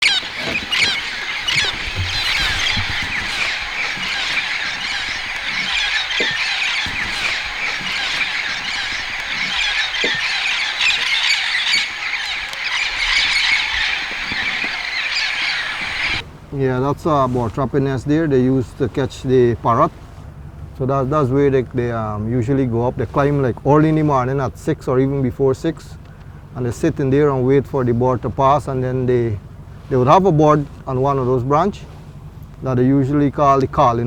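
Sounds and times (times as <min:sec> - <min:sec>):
chorus of many birds: 0:00.0 - 0:19.9.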